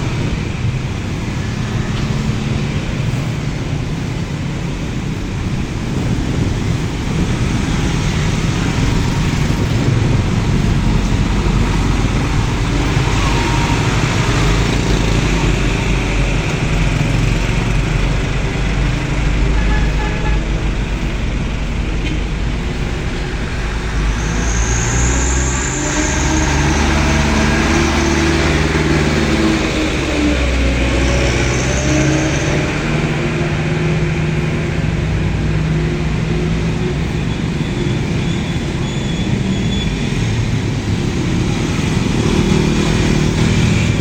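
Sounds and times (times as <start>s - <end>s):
road traffic passing: 0.0s - 44.0s
high squeal: 7.1s - 34.2s, 36.2s - 44.0s.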